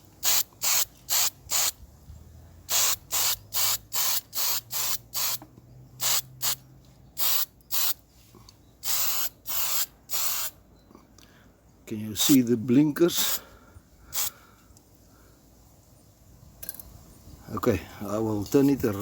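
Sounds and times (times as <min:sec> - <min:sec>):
spray paint hissing: 0:00.2 - 0:01.8, 0:02.7 - 0:05.4, 0:06.0 - 0:06.6, 0:07.2 - 0:08.0, 0:08.8 - 0:10.6, 0:14.1 - 0:14.3.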